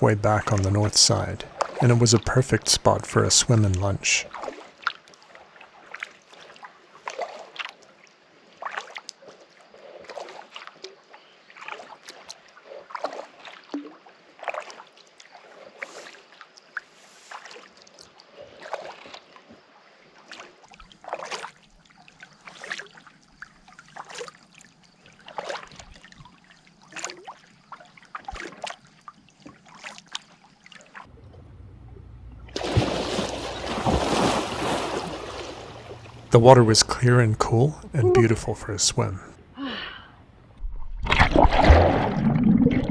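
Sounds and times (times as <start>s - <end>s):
paddle splashing in water: 31.0s - 39.3s
rushing splashing water: 32.5s - 37.6s.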